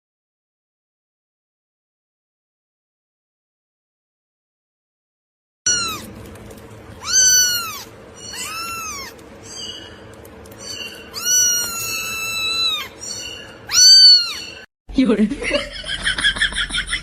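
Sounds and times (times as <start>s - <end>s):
cat meowing: 5.7s - 6.2s, 7.0s - 9.8s, 10.6s - 14.7s.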